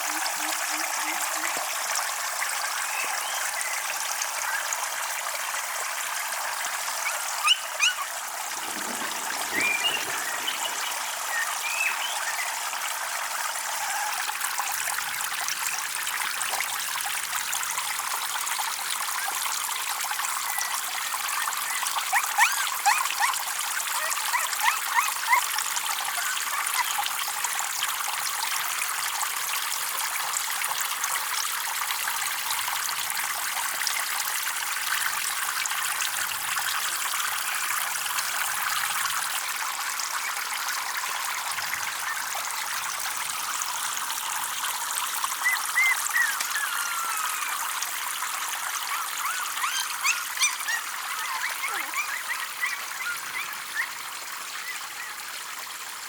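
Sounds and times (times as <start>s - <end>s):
running water trickling: 0.0s - 56.0s
water plinks: 7.0s - 12.8s.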